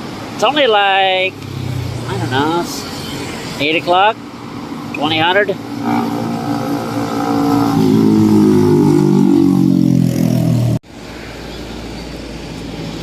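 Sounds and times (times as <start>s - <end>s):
low traffic hum: 0.0s - 13.0s
vehicle passing by: 0.9s - 10.8s.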